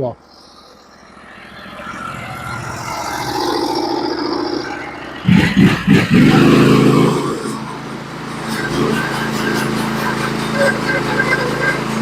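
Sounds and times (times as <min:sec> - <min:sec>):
band saw cutting log: 0:05.3 - 0:12.0.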